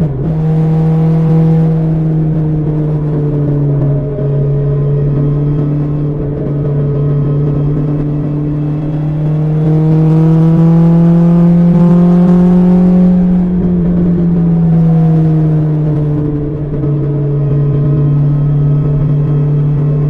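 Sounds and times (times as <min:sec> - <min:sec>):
motorcycle engine cruising: 0:00.0 - 0:20.0.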